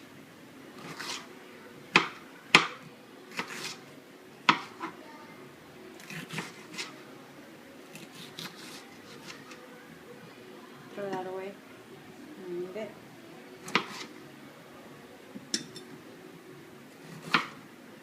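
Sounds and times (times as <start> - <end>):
knife chopping on cutting board: 4.5 - 4.9, 13.6 - 14.1, 17.1 - 17.6.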